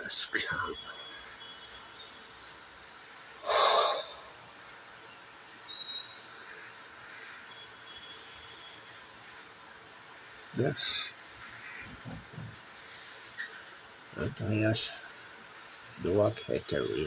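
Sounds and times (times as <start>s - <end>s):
faint background hiss: 0.0s - 17.0s
sharp nasal snort: 3.4s - 4.3s.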